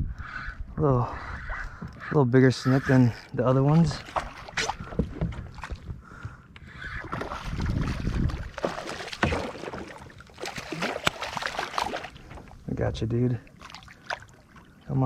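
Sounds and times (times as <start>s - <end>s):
wind rumble on microphone: 0.0s - 2.0s, 3.9s - 8.6s
small water splashes: 2.9s - 6.0s, 6.8s - 15.0s.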